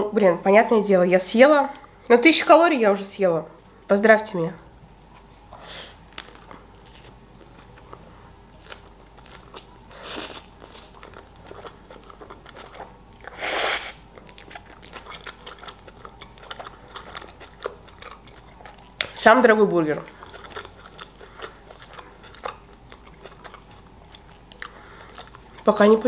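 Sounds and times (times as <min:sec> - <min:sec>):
person chewing food: 0:05.6 - 0:19.2, 0:19.9 - 0:25.7.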